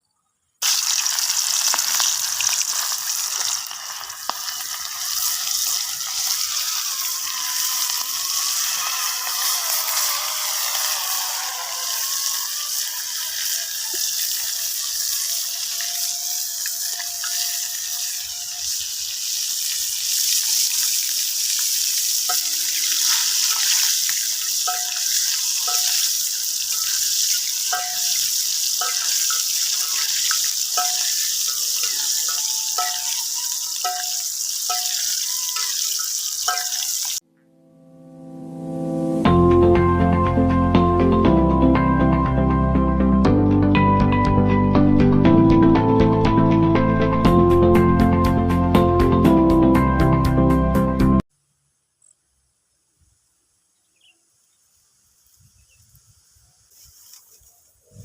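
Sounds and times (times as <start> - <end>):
food sizzling in hot oil: 0.6 - 37.2.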